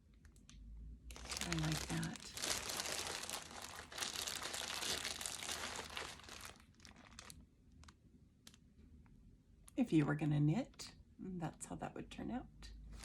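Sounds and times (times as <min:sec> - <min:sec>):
packaging crinkling: 0:01.1 - 0:08.6.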